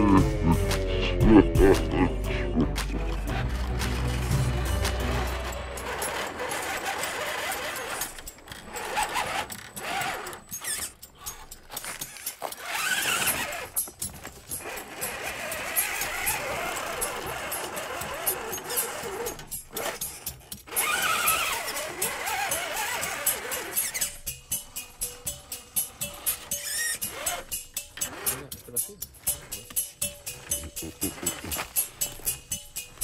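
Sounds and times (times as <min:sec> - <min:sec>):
small electric motor whining: 0:03.1 - 0:28.6.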